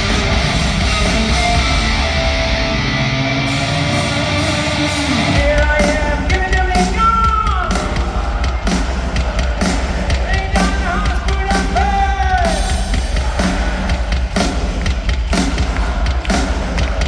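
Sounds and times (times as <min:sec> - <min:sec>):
electric guitars: 0:00.0 - 0:07.0
live hard rock band: 0:00.0 - 0:17.0.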